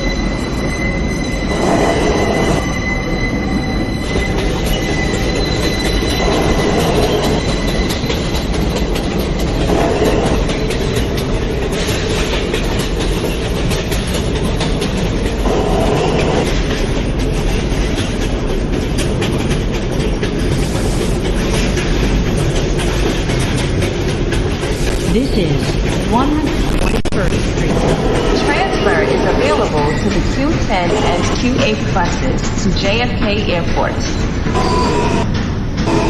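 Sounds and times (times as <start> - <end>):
high wheel squeal: 0.0 - 18.2, 34.5 - 35.3
train wheels rumbling on rail: 0.0 - 36.0.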